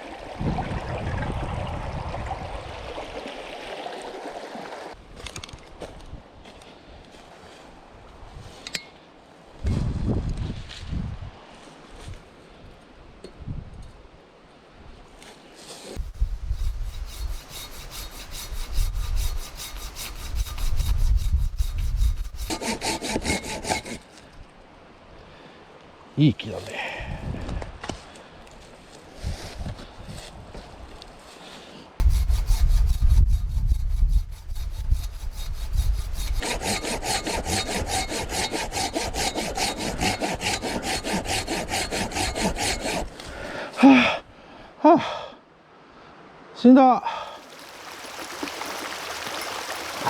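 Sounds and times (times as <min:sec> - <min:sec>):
hand saw cutting wood: 0:15.6 - 0:24.2, 0:32.0 - 0:43.6.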